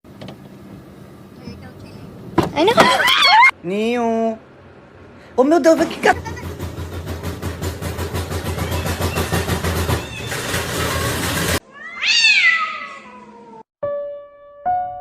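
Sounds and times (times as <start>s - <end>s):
cat meowing loudly: 11.6s - 13.6s
piano notes: 13.8s - 15.0s.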